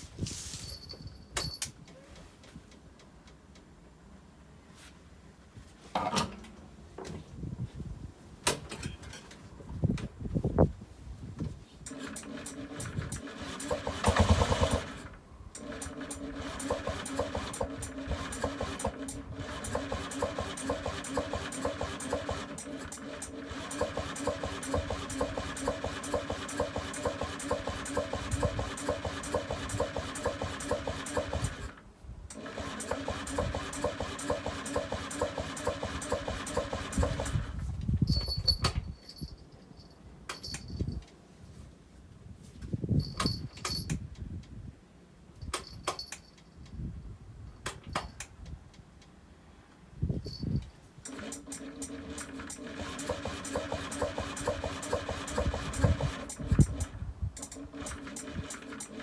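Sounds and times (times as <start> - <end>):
moped scooter engine running: 11.9 - 15.0, 15.6 - 31.6, 51.9 - 56.9.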